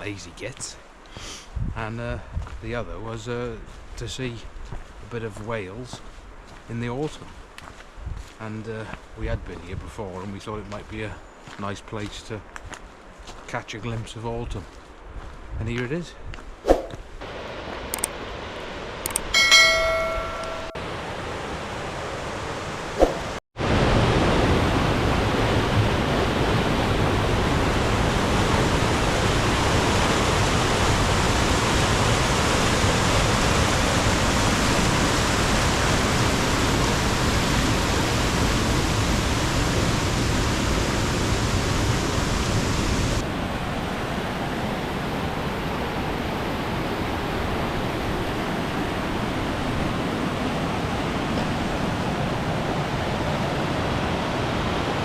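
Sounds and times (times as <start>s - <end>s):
waterfall rushing: 22.8s - 55.0s.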